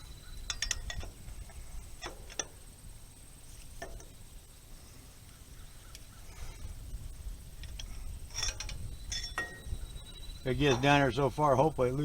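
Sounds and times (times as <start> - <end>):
low background noise: 0.0 - 12.0
wrench clicking on metal bolts: 0.3 - 2.6, 7.6 - 9.7.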